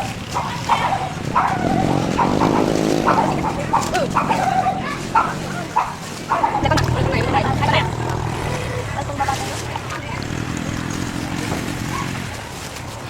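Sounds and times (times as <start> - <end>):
dog barking and yipping: 0.0 - 6.7.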